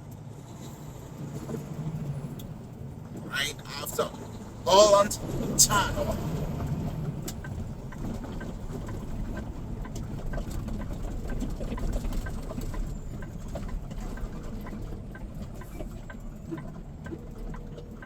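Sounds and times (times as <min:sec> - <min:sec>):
truck engine and road rumble: 0:00.0 - 0:18.0.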